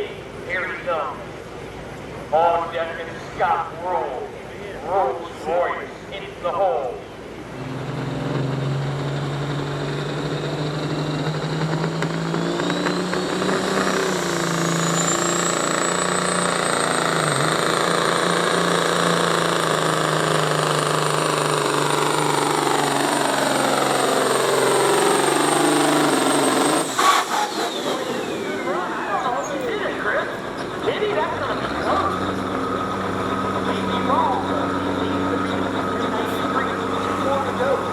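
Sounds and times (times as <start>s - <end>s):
engine under full load whining: 0.0s - 37.9s.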